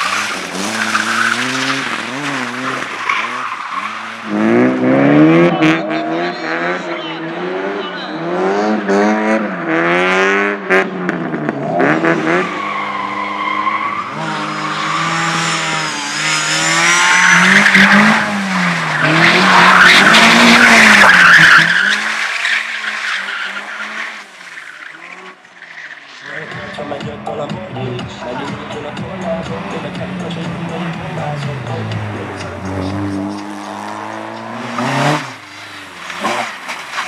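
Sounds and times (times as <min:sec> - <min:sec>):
car engine revving: 0:00.0 - 0:37.0
tyres squealing: 0:12.3 - 0:27.0.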